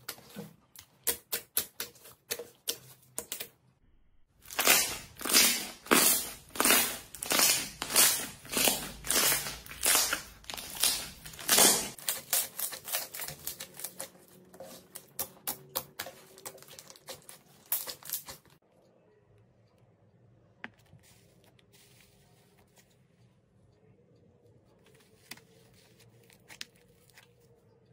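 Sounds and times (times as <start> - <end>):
slime crackling: 4.4 - 18.6.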